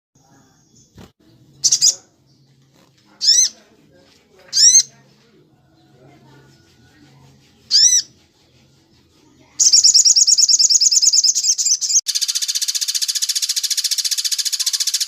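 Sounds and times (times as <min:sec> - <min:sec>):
bird whistling and trilling: 0:09.6 - 0:15.0.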